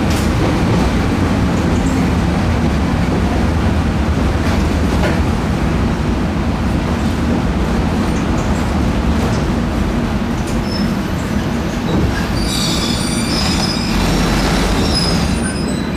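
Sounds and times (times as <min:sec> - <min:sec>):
electric train rumbling: 0:00.0 - 0:15.9
wheel and brake squeal: 0:10.6 - 0:11.4, 0:12.2 - 0:15.9.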